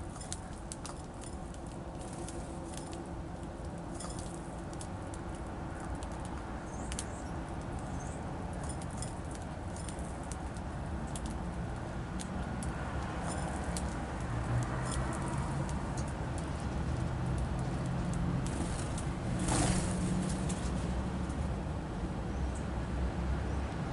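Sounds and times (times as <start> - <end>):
songbirds chirping: 6.0 - 9.9.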